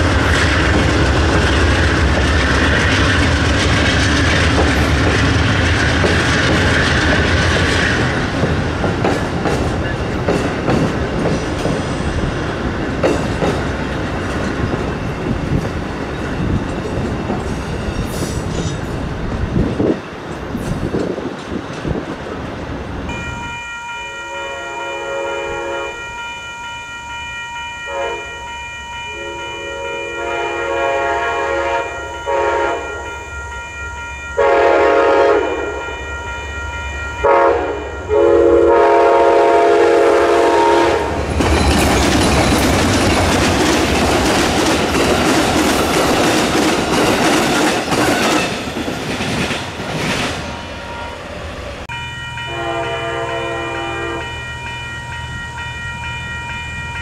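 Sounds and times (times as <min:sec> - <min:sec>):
wheels clacking over rail joints: 0:00.0 - 0:18.9, 0:41.1 - 0:50.7
train air horn blasts: 0:23.1 - 0:33.6, 0:34.3 - 0:36.6, 0:37.2 - 0:41.2, 0:51.9 - 0:54.8.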